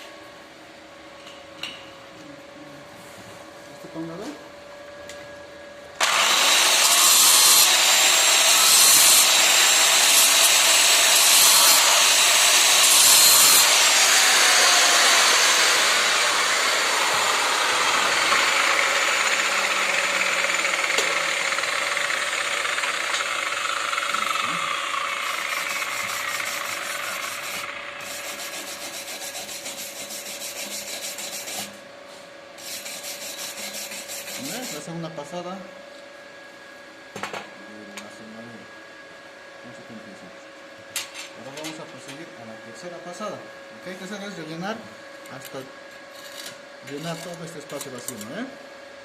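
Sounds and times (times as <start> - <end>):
angle grinder grinding: 6.0 - 31.8, 32.6 - 34.9.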